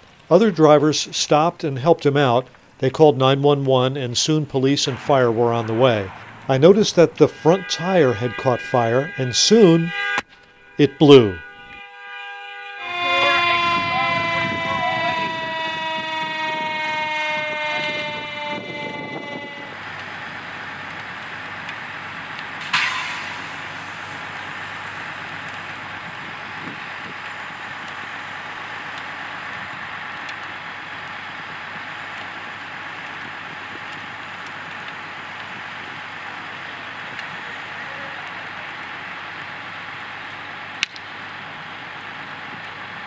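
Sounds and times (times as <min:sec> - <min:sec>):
steady rushing noise: 0:03.9 - 0:07.7
horn falling in pitch: 0:04.5 - 0:20.0
tire bursting with a bang: 0:22.5 - 0:27.8.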